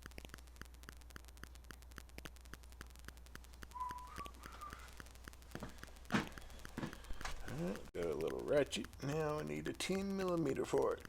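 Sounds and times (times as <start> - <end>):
faint even ticking: 0.0 - 11.0
short whistled note: 3.8 - 4.8.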